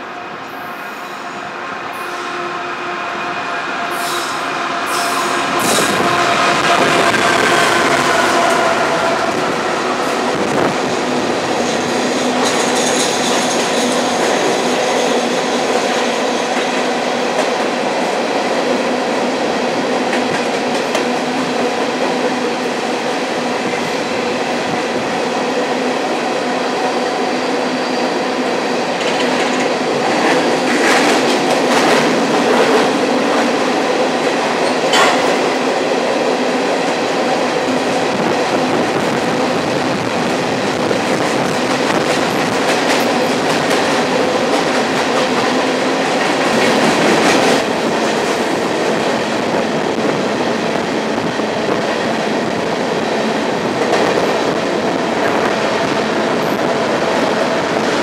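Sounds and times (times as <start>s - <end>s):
diesel locomotive engine drone: 0.0s - 58.0s
wheels on rails clickety-clack: 11.4s - 17.7s, 29.0s - 35.5s, 37.7s - 50.2s.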